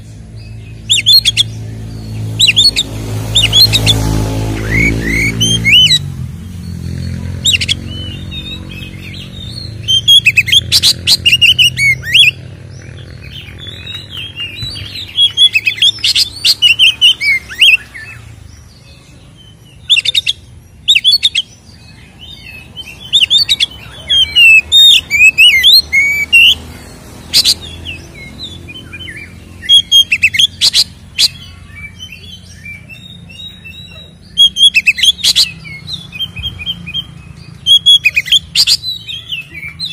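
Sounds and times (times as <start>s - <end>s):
bird singing whistled phrases: 2.4s - 12.4s, 19.8s - 26.6s, 27.3s - 39.9s.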